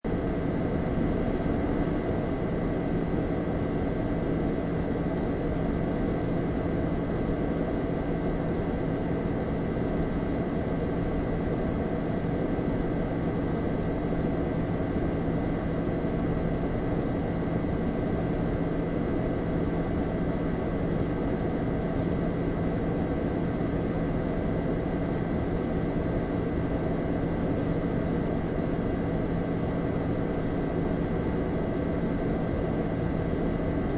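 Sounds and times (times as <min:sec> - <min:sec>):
low electrical hum: 0:00.0 - 0:33.9.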